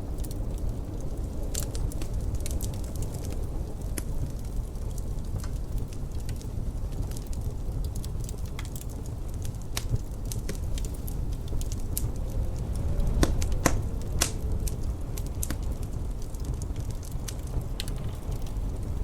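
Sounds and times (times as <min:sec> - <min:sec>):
wood fire crackling: 0:00.0 - 0:19.0
low rumble: 0:07.7 - 0:19.0.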